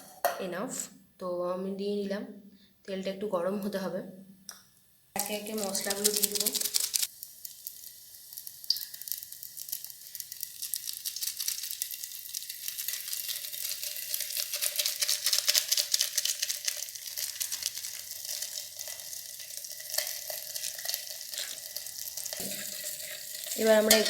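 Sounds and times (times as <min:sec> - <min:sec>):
oil sizzling and crackling: 0:05.1 - 0:24.0.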